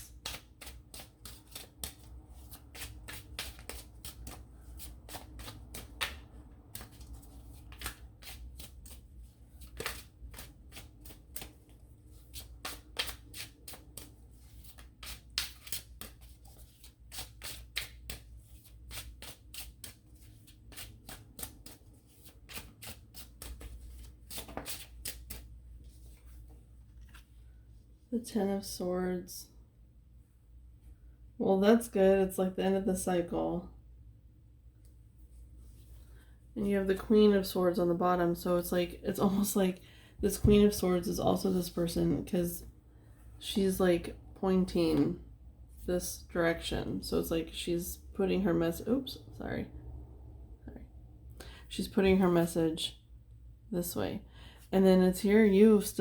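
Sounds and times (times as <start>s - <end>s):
cards being shuffled: 0.0s - 27.4s.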